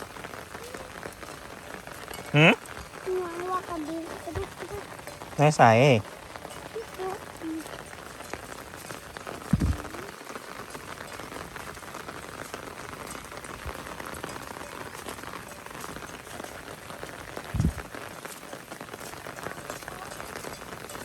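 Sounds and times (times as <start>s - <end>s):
heavy rain pattering: 0.0s - 21.0s
short low thump: 9.5s - 9.8s.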